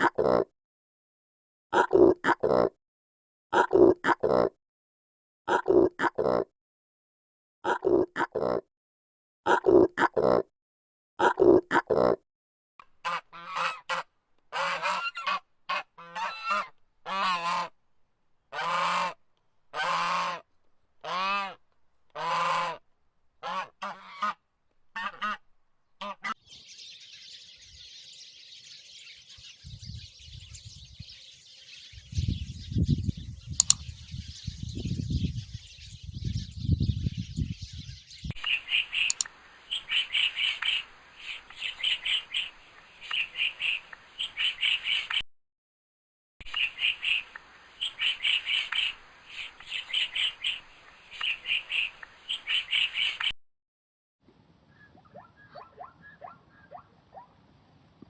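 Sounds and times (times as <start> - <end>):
goose honking: 12.9 - 17.8, 18.5 - 21.6, 22.2 - 22.8, 23.4 - 25.4, 26.0 - 26.4, 38.4 - 45.2, 46.4 - 53.3
rapid high chirps: 38.3 - 45.2, 46.4 - 53.3
steady high hiss: 38.4 - 45.1, 46.5 - 53.2.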